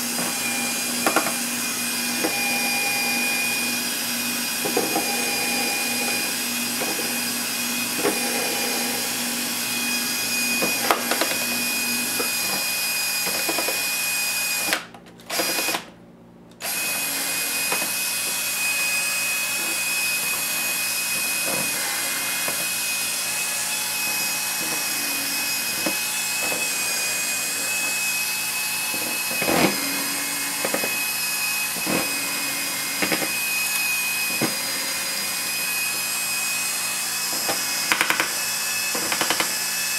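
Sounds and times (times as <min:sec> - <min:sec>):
small motor whirring with whine: 0:00.0 - 0:15.8.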